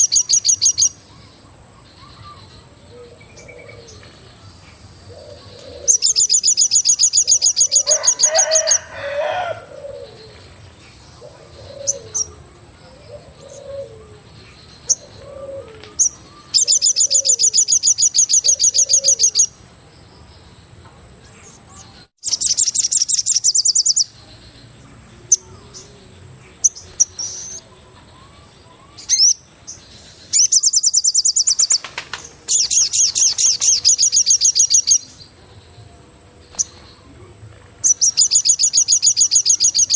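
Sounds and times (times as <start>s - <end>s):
bird high rapid trill: 5.1s - 10.3s, 14.8s - 19.6s, 22.2s - 24.6s, 25.2s - 35.3s, 37.8s - 39.9s
low cooing notes: 8.9s - 10.6s, 11.2s - 14.4s, 15.0s - 16.0s.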